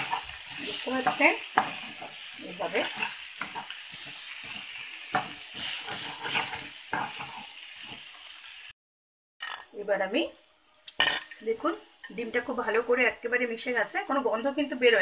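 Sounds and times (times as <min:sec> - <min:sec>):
wooden spatula scraping pan: 0:00.0 - 0:08.2
egg and vegetables sizzling: 0:00.0 - 0:08.8, 0:09.4 - 0:15.0.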